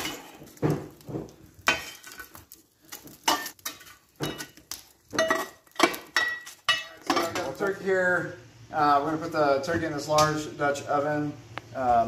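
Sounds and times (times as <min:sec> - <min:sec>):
metal tools scraping coals: 0:00.0 - 0:08.0.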